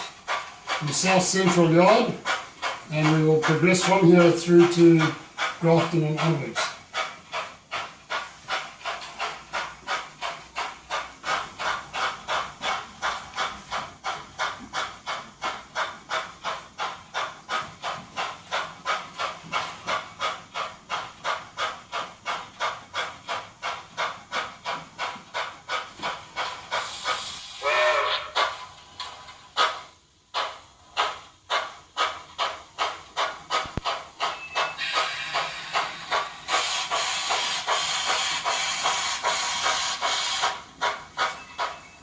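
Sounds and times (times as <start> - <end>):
model steam locomotive chuffing: 0.0 - 42.0
burst of steam: 23.3 - 42.0.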